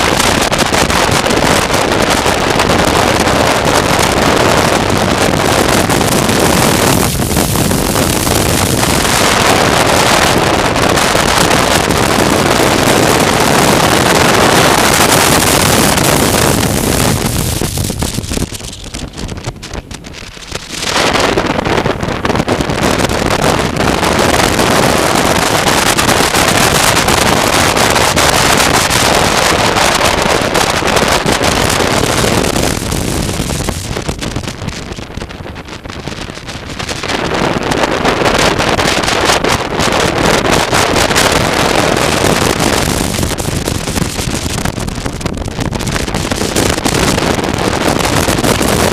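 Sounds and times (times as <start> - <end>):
road noise: 0.0 - 48.9
wind rushing over microphone: 0.0 - 48.9.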